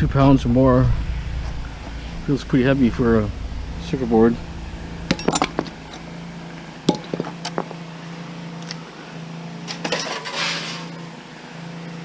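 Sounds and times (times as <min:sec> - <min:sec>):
low hum: 0:00.0 - 0:09.9
scrap metal knocking and clinking: 0:05.0 - 0:07.8
scraping rustle: 0:09.8 - 0:11.0.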